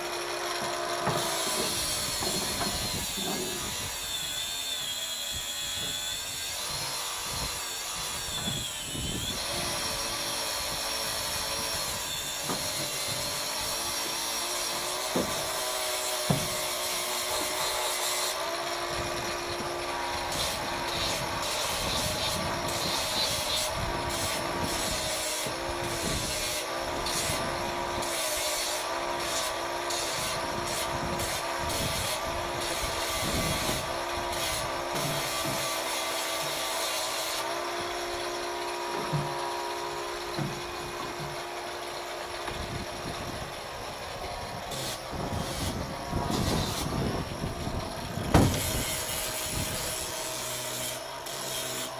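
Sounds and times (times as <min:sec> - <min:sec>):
power tool motor whine: 0:00.0 - 0:51.9.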